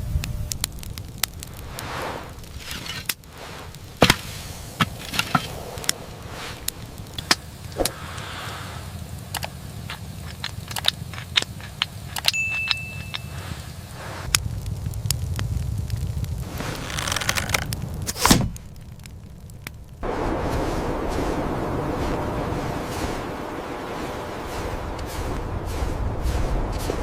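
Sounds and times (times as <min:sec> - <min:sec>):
sharp clicks and crackles: 0:00.0 - 0:20.0
low rumble: 0:00.0 - 0:27.0
high steady tone: 0:12.3 - 0:13.8.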